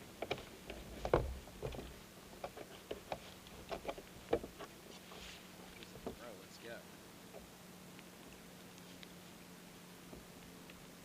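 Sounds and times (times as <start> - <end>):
knocks and clicks on a kayak: 0.2 - 4.8, 5.8 - 6.3.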